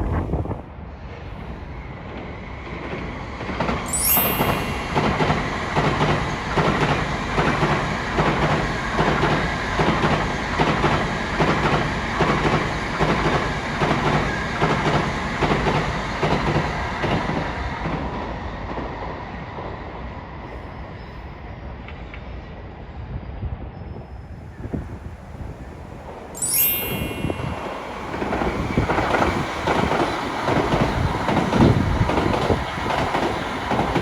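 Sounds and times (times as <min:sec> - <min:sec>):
train wheels clattering: 0:02.8 - 0:18.9, 0:27.3 - 0:34.0.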